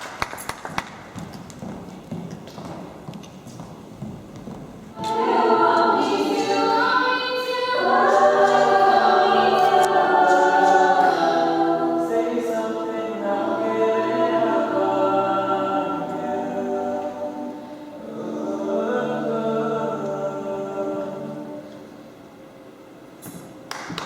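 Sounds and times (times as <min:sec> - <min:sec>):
group of voices singing: 0:05.0 - 0:22.1.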